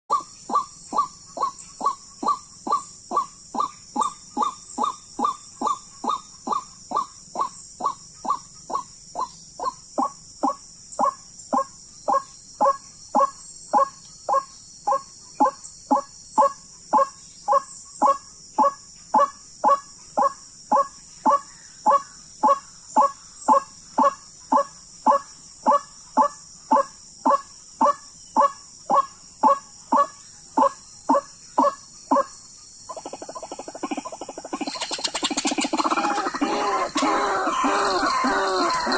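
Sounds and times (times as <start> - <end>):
waterhen calling: 33.0 - 38.9.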